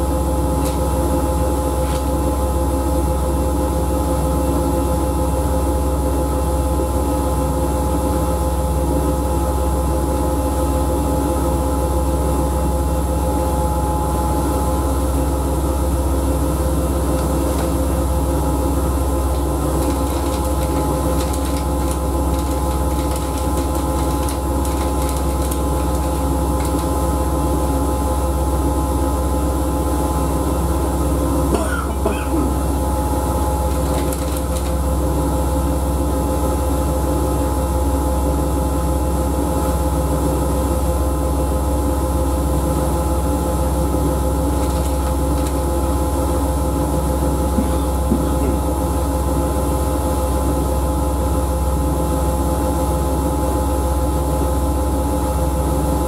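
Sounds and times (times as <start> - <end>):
washing machine motor hum: 0.0 - 56.0
steady whine: 5.4 - 39.6.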